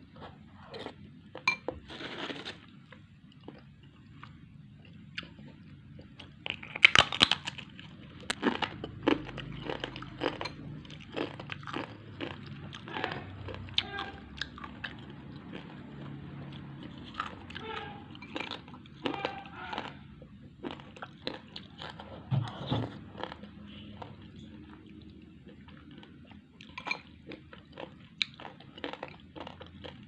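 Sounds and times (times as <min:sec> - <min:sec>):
chewing: 0:03.3 - 0:30.0
crunchy food crunching: 0:06.2 - 0:22.3, 0:22.9 - 0:30.0.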